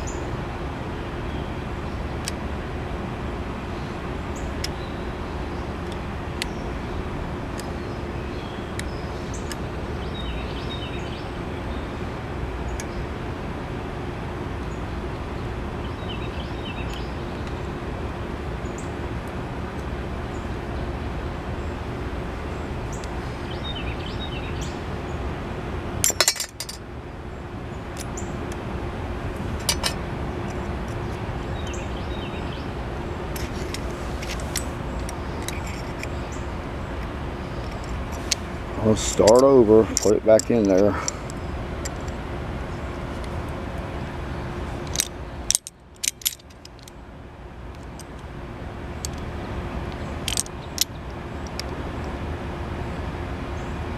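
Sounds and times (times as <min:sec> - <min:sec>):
steady hiss: 0:00.0 - 0:53.9
metallic clinks: 0:26.0 - 0:26.8.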